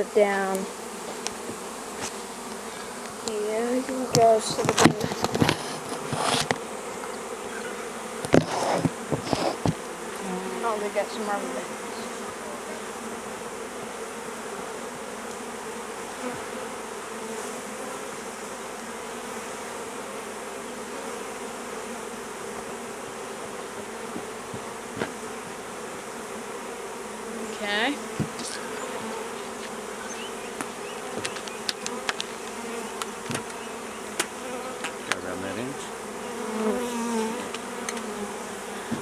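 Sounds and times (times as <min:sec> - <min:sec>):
bees buzzing: 0:00.0 - 0:39.0
small clicks: 0:30.6 - 0:33.6.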